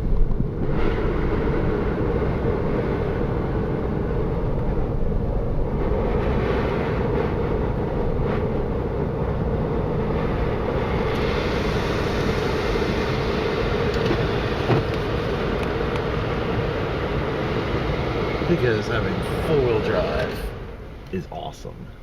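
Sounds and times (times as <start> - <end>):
vehicle driving through snow: 0.0 - 20.9
vehicle bump: 10.1 - 22.0.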